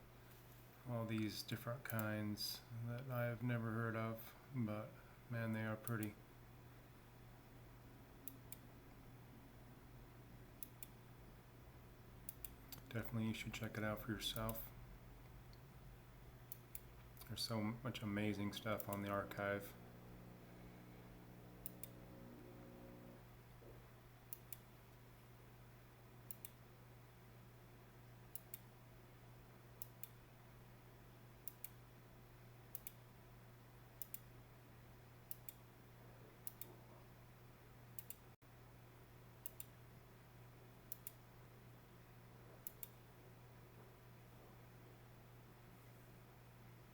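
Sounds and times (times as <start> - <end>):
low steady hum: 0.0 - 46.9
computer mouse clicks: 12.3 - 12.9, 21.6 - 22.0, 24.3 - 24.7, 26.3 - 26.6, 28.3 - 28.7, 31.4 - 31.8, 32.7 - 33.0, 34.0 - 34.3, 35.3 - 35.6, 36.4 - 36.8, 38.0 - 38.2, 39.4 - 39.7, 40.9 - 41.2, 42.6 - 43.0.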